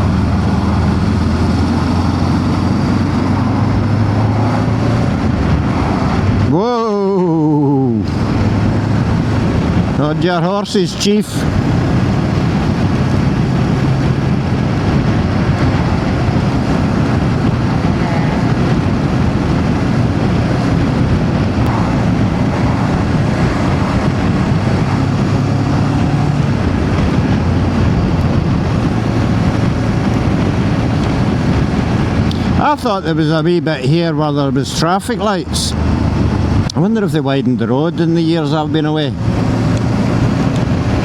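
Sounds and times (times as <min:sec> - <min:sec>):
motorcycle engine running: 0:00.0 - 0:06.8, 0:08.0 - 0:10.7, 0:11.4 - 0:32.8
wind rushing over microphone: 0:00.0 - 0:41.0.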